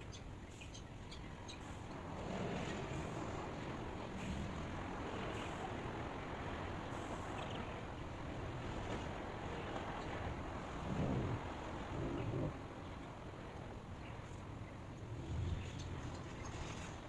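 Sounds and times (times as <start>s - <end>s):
rushing white noise: 0.4s - 17.0s.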